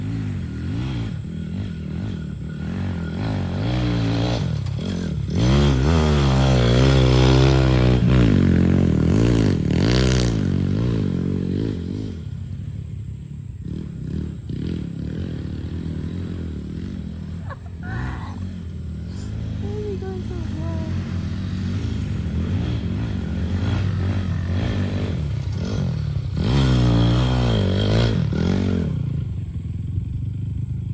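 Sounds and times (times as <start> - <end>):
small engines revving: 0.0 - 30.9.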